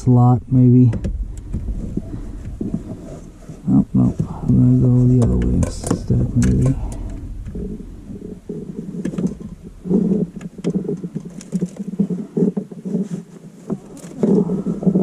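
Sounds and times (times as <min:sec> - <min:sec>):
uneven low droning: 0:00.0 - 0:12.1.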